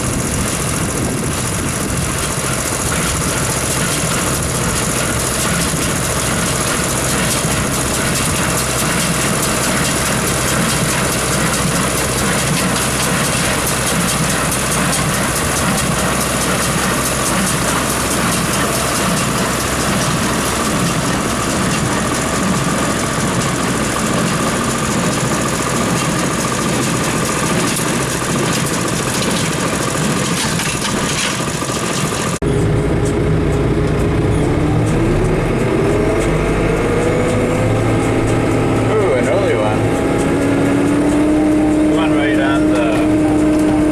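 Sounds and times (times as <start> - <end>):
engine running: 0.0 - 43.9
engine revving up: 32.4 - 43.9.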